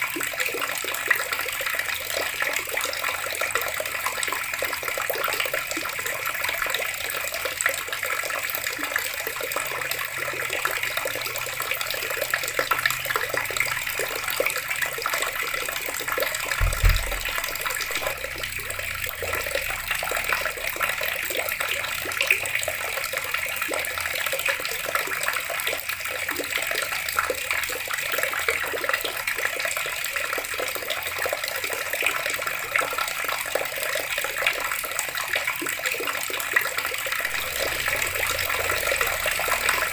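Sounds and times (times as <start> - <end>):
water running from a tap: 0.0 - 39.9
low thump: 16.5 - 19.2.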